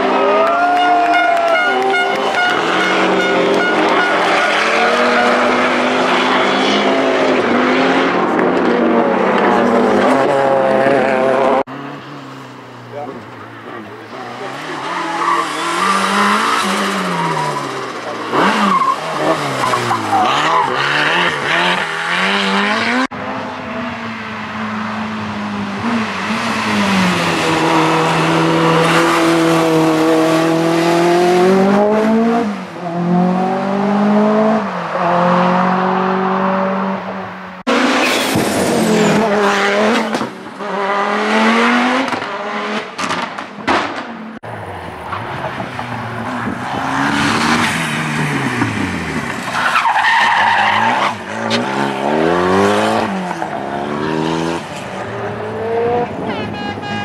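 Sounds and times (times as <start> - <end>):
rally car engines at full throttle: 0.0 - 57.0.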